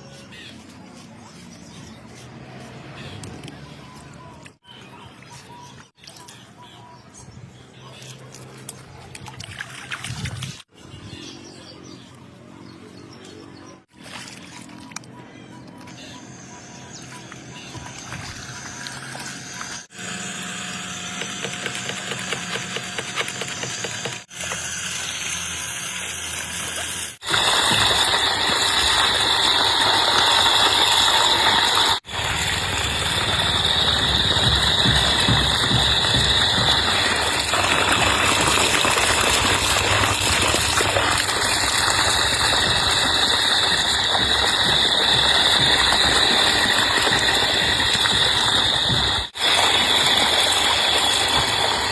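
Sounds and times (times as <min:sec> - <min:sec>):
electric water pump whirring: 0:17.0 - 0:51.9.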